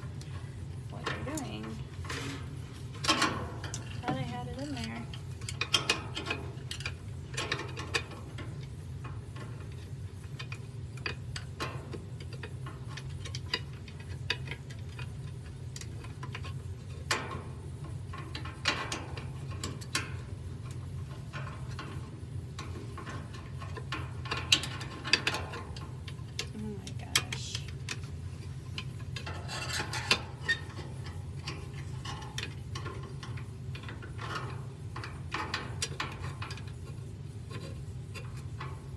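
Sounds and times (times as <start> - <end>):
steady low hum: 0.0 - 13.6, 19.4 - 29.6
hands clicking and scraping plastic: 9.4 - 38.9.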